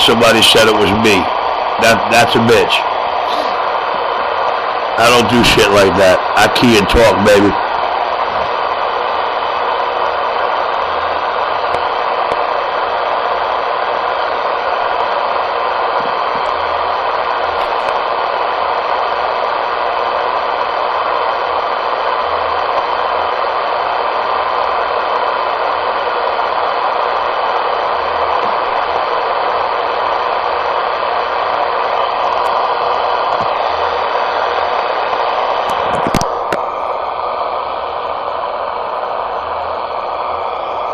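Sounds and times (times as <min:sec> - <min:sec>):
radio speaker rushing hiss: 0:00.0 - 0:40.9.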